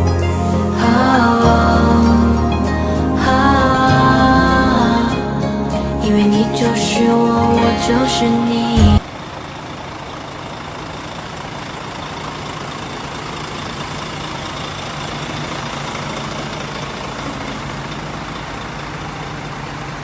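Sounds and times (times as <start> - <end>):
background music: 0.0 - 9.1
heavy vehicle engine humming: 0.0 - 20.0.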